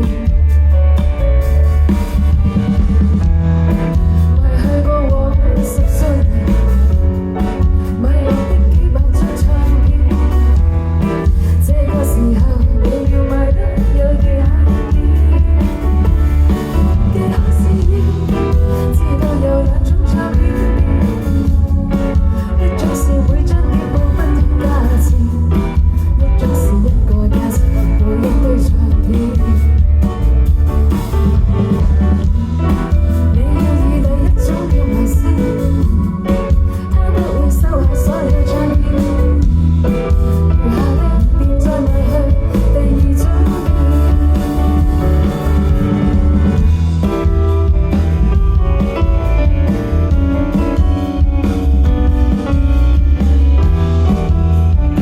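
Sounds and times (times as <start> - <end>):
guitar: 0.0 - 55.0
heavy bass line: 0.0 - 55.0
live rock band playing: 0.0 - 55.0
person singing: 33.0 - 39.7, 40.5 - 45.7.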